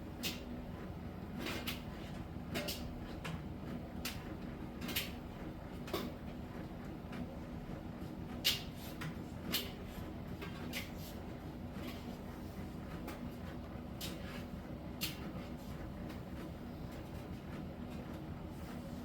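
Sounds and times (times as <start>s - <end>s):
clicks and knocks from dryer drum: 1.3s - 7.4s, 8.4s - 12.1s.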